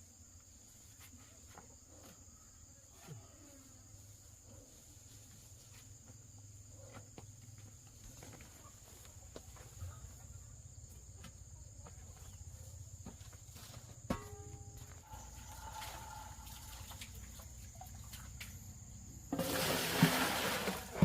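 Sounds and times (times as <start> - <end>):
high insect drone: 10.1 - 19.4.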